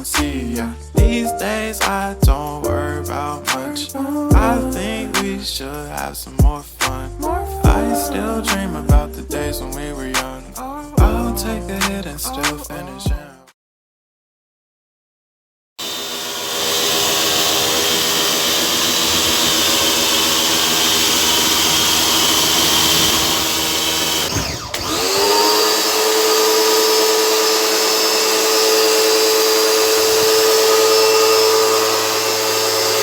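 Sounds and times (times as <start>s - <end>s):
pressure washer whine and hiss: 15.8s - 33.0s.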